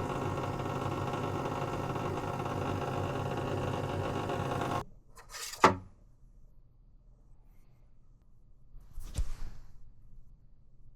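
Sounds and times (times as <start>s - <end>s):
espresso machine pump buzzing: 0.0s - 4.8s.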